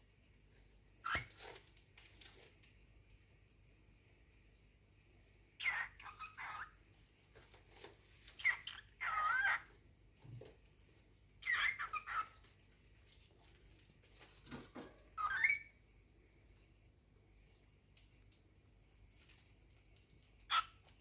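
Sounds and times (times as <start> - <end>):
cockatiel calling and whistling: 1.0 - 1.4, 5.6 - 6.8, 8.4 - 9.6, 11.4 - 12.4, 15.2 - 15.7, 20.5 - 20.8.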